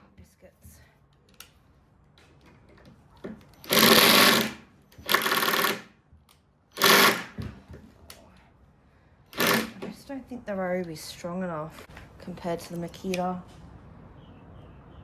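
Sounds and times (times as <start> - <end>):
impact driver hammering: 3.6 - 5.9, 6.8 - 7.5, 9.4 - 9.9.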